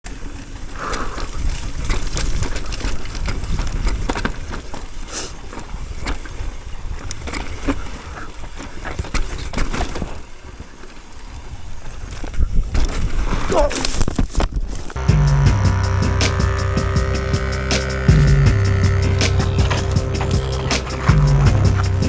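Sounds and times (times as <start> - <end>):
mountain bike rattling and clicking: 18.1 - 22.0.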